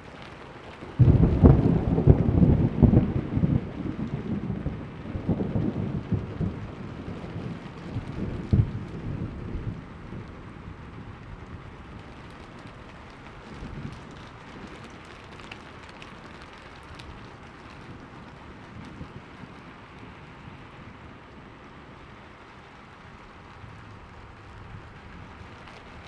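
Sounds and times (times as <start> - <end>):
steady rain: 0.0 - 26.0
thunder rumbling: 0.8 - 26.0
sharp thunder cracks: 1.0 - 9.5.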